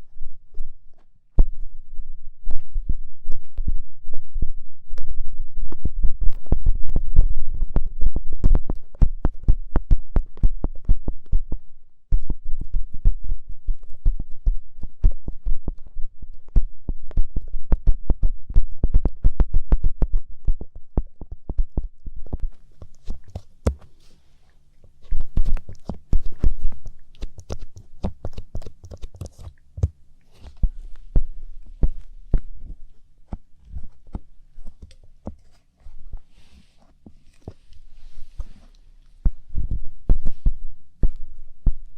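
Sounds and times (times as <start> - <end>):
ear pick scraping and rubbing: 30.3 - 38.9.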